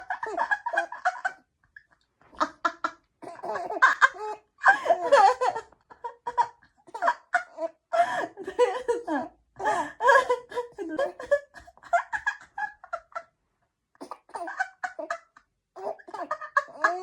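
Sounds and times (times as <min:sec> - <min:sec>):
baby laughing: 0:02.3 - 0:05.6, 0:06.2 - 0:07.8, 0:14.0 - 0:17.0
woman laughing: 0:02.4 - 0:13.3, 0:14.4 - 0:17.0.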